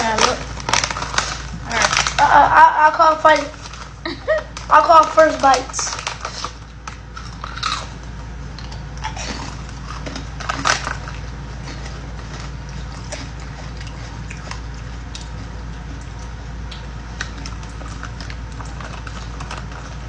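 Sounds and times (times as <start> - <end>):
candy being crunched: 0.0 - 8.0, 8.7 - 12.7
steady low hum: 0.0 - 20.0.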